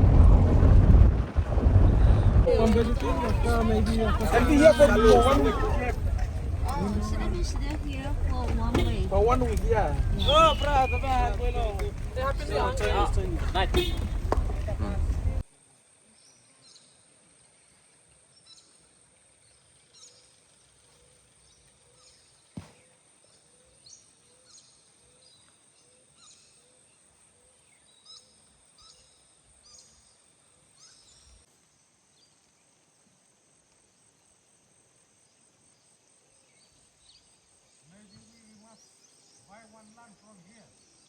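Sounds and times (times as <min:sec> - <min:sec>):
birds chirping: 0:00.0 - 0:15.4.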